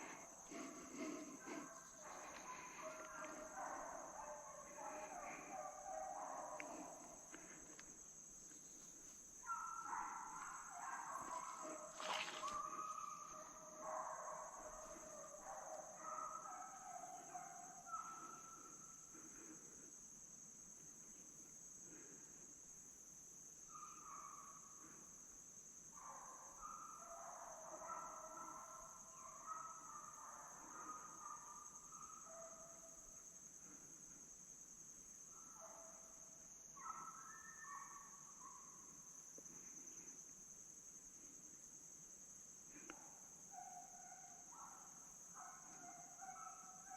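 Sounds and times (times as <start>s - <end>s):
distant hounds baying: 0.0s - 22.5s, 23.6s - 42.0s, 42.6s - 46.9s
insects droning: 0.0s - 46.9s.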